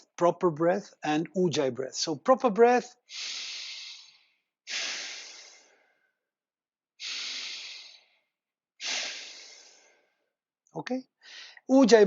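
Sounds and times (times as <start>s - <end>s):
deep nasal breathing: 3.1s - 6.2s, 7.0s - 10.2s.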